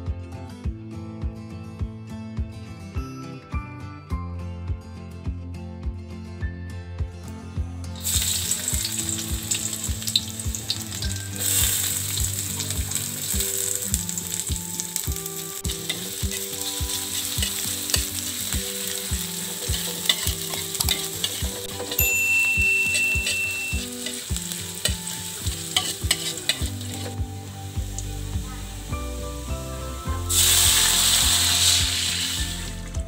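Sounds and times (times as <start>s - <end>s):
food sizzling in oil: 8.0s - 32.9s.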